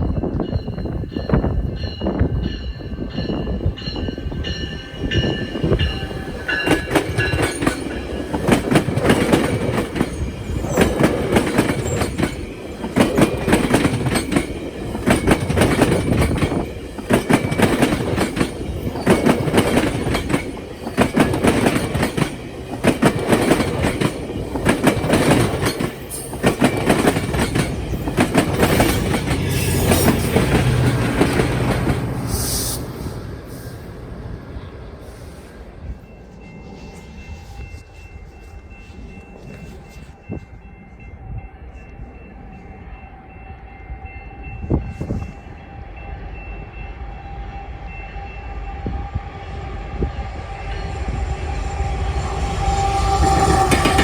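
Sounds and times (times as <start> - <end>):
train wheels clattering over crossing: 1.1 - 34.0, 50.2 - 54.0.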